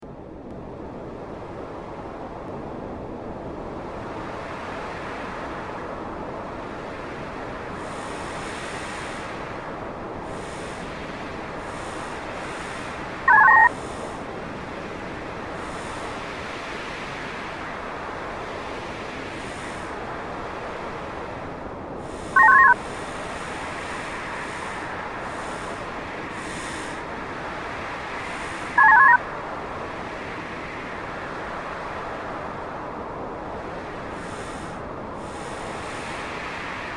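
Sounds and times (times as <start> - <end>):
steady hiss: 7.4 - 17.4, 18.7 - 20.4, 21.9 - 28.8, 34.0 - 36.9
two-pitch electronic beep: 13.3 - 13.7, 22.4 - 22.8.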